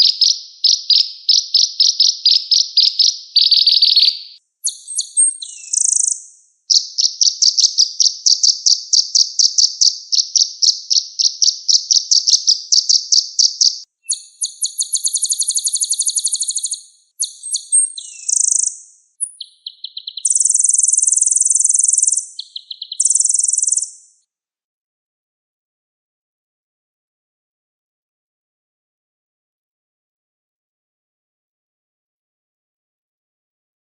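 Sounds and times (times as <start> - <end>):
sunbird singing high-pitched song: 0.0 - 24.2.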